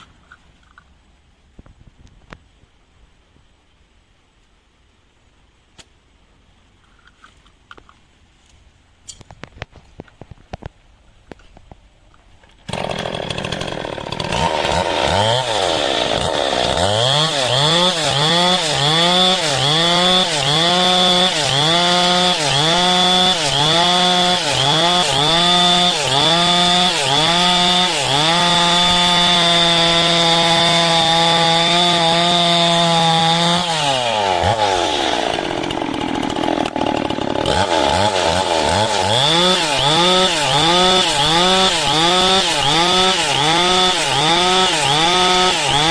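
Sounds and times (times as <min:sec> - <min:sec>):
chainsaw cutting log: 0:12.6 - 0:45.9.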